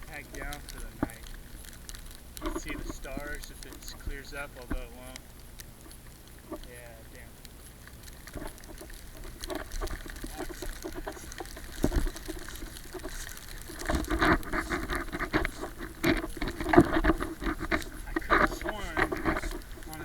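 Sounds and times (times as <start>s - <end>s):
footsteps crunching through snow: 8.4s - 20.0s.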